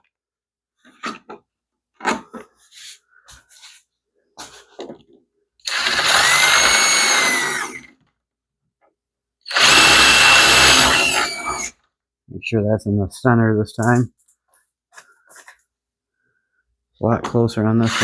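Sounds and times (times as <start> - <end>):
power drill driving screw: 5.6 - 7.9, 9.5 - 11.7, 17.8 - 18.0.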